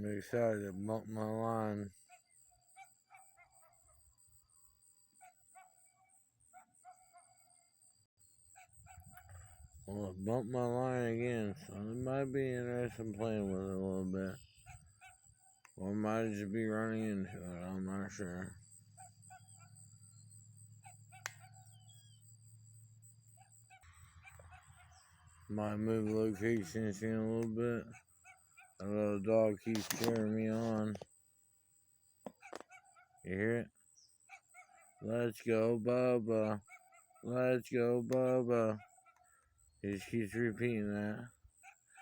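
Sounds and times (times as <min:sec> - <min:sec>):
bird chirp: 0:00.0 - 0:42.0
distant animal calls: 0:00.0 - 0:42.0
sharp click: 0:29.7 - 0:31.1.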